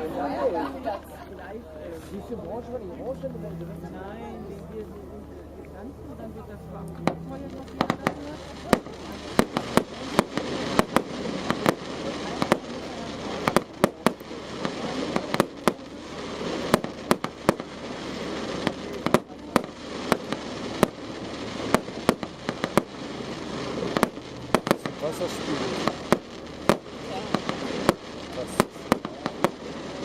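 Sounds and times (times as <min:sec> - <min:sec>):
background hiss: 0:00.0 - 0:30.0
fireworks bangs and pops: 0:07.0 - 0:30.0.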